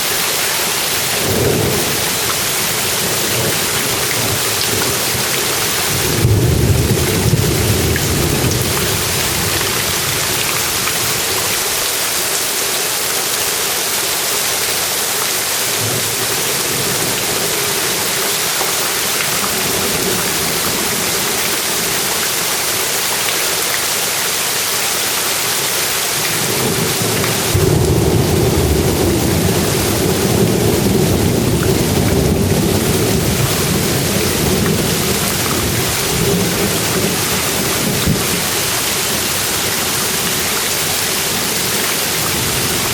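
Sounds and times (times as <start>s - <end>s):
steady rain: 0.0s - 42.9s
rumble of thunder: 1.2s - 10.2s, 26.6s - 38.5s.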